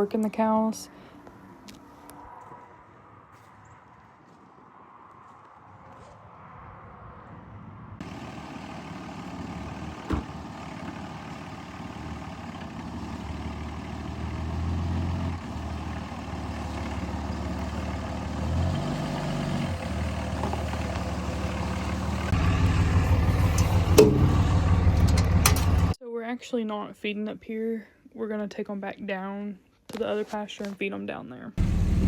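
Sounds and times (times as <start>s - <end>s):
vehicle engine revving: 8.0s - 26.0s, 31.6s - 32.0s.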